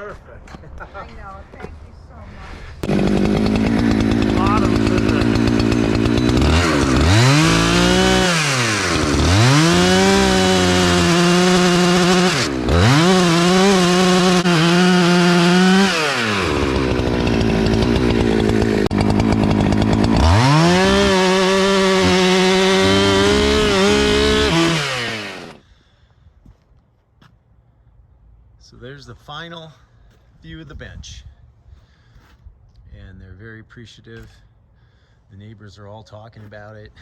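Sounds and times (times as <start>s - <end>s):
chainsaw revving and cutting log: 2.8s - 25.6s.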